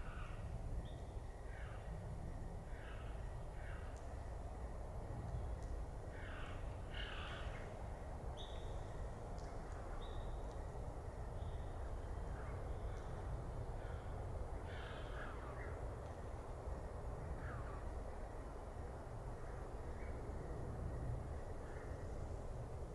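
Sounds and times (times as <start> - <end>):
harsh caw-like bird calls: 0.0 - 0.5, 1.5 - 2.0, 2.7 - 4.0, 6.1 - 7.7, 13.8 - 15.7
steady low rumble: 0.0 - 22.9.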